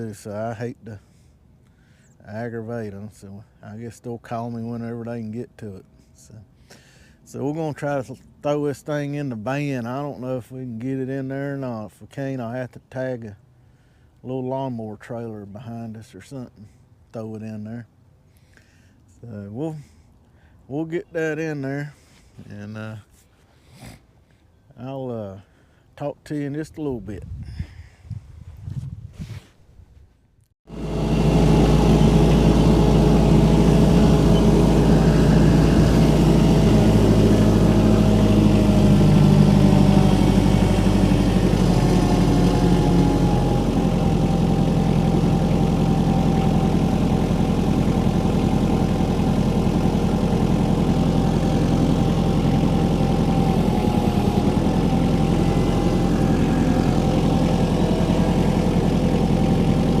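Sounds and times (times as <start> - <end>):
engine idling: 30.7 - 60.0.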